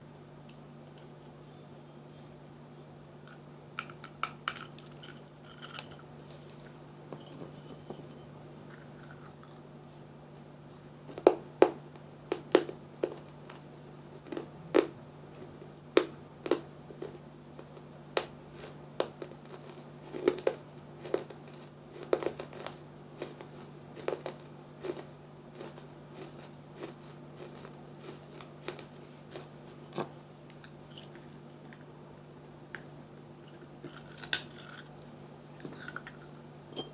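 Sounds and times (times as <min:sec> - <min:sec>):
steady low hum: 0:00.0 - 0:36.9
clay lamp being chewed: 0:03.2 - 0:09.7, 0:14.2 - 0:31.9, 0:32.7 - 0:36.9.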